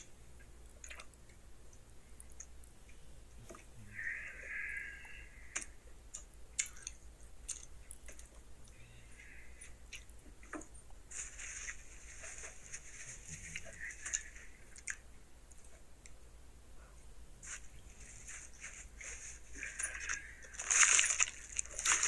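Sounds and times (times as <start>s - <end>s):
man chewing food: 0.0s - 3.8s, 5.4s - 12.8s, 13.6s - 16.2s, 19.0s - 22.0s.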